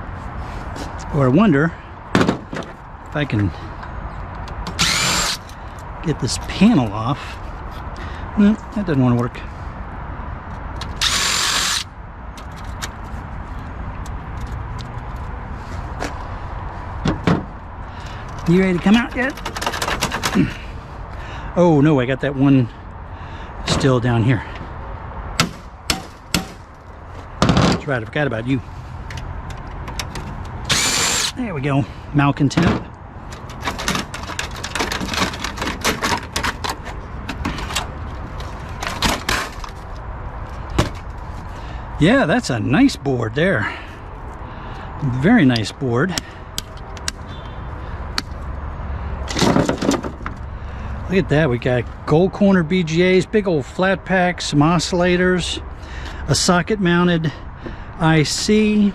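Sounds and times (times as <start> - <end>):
power tool whirring: 4.6 - 5.6, 10.8 - 11.9, 30.6 - 31.4
metal parts clicking and tapping: 18.3 - 20.4, 33.3 - 37.9.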